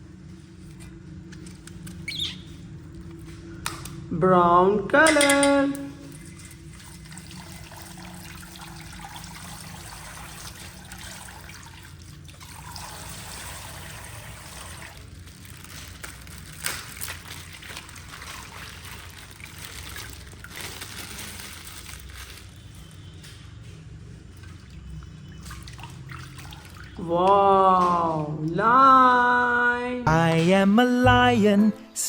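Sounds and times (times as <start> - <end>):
water trickling from plastic bag: 6.0 - 27.8.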